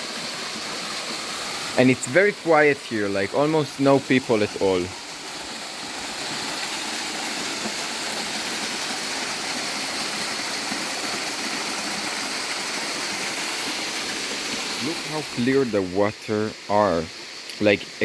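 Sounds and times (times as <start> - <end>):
small waterfall rushing and splashing: 0.0 - 18.0.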